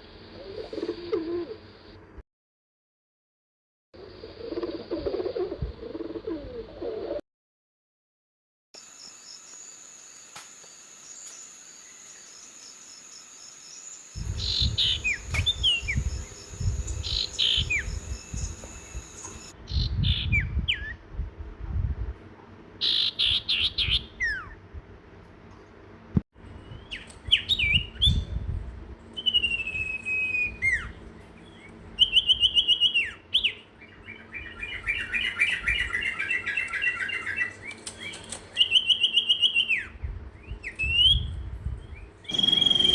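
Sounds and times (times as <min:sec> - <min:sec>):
small birds chirping: 0:08.8 - 0:20.3, 0:41.8 - 0:42.9.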